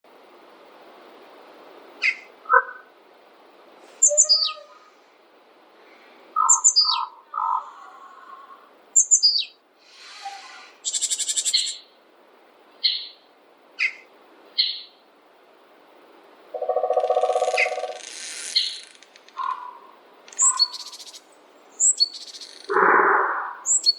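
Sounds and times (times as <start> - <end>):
steady background hiss: 0.1 - 23.9
songbirds chirping: 3.8 - 15.2, 15.8 - 18.0, 18.6 - 23.9
buzzy bird trill: 4.0 - 4.8, 16.6 - 19.8, 20.4 - 21.2.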